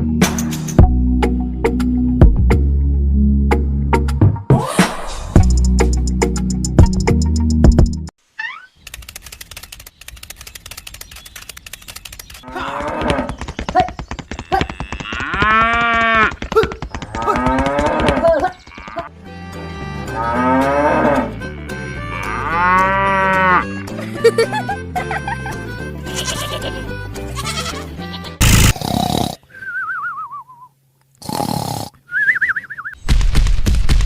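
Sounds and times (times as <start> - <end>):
background music: 0.0 - 8.1, 19.1 - 28.7
rapid clicks: 8.8 - 12.4
cow mooing: 20.1 - 23.7.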